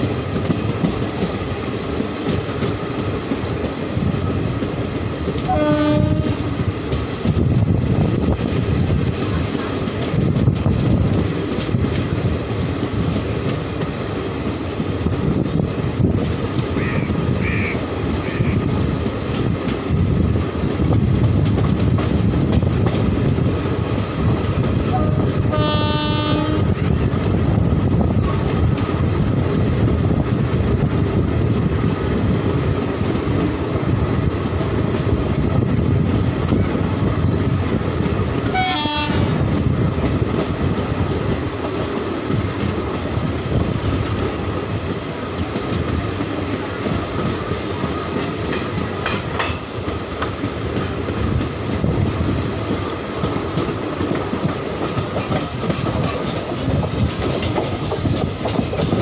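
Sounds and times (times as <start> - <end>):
train wheels rumbling on track: 0.0 - 59.0
train horn: 5.4 - 6.5, 24.9 - 26.8, 38.5 - 39.4.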